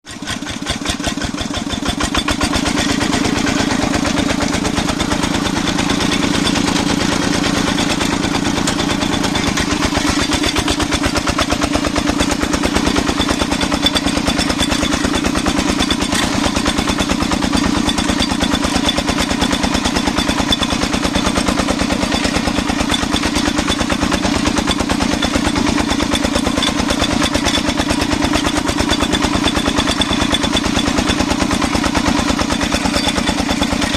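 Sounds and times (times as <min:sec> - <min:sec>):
diesel engine chugging: 0:00.0 - 0:33.9.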